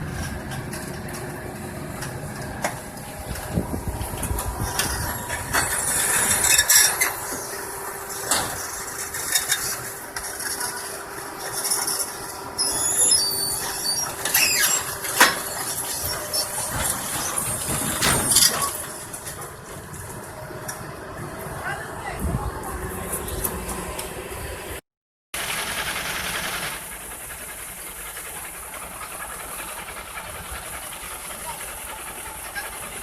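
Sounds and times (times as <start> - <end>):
metal squealing and scraping: 0.0 - 20.3
truck engine running: 0.0 - 24.8, 25.4 - 33.0.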